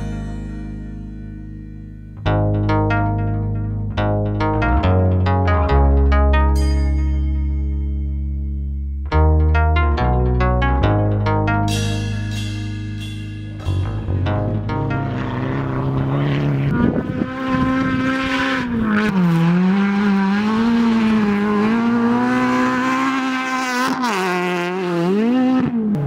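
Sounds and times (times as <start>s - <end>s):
rally car engine at high revs: 13.8s - 26.0s.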